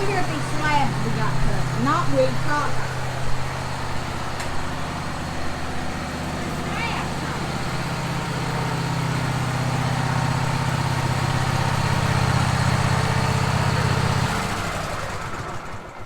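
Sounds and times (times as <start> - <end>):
sawmill engine humming: 0.0 - 16.0.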